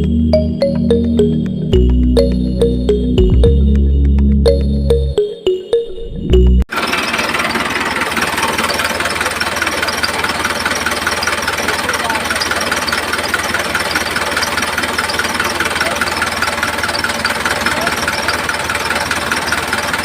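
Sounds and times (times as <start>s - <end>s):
music: 0.0s - 6.7s
small motor buzzing rattle: 6.7s - 20.0s.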